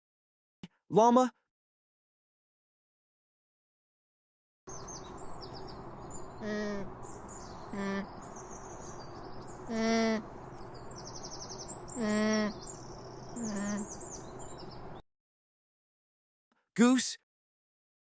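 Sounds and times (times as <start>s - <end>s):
birds chirping: 4.7s - 15.0s
llama calling: 9.7s - 10.3s, 12.0s - 12.6s, 13.4s - 13.9s.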